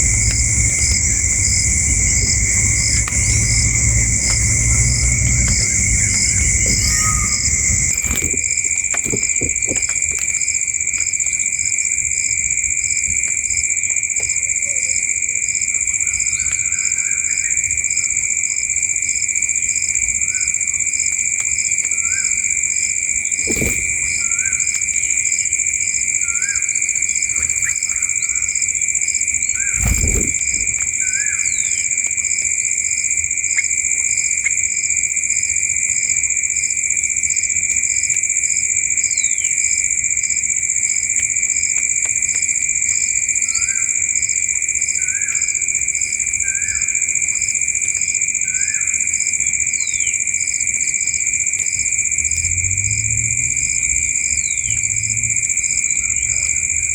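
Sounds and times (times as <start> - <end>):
dull thumps: 0.0 - 10.3, 23.4 - 24.4, 29.8 - 30.9
insects droning: 0.0 - 56.9
pulsing cricket chirp: 0.0 - 56.9.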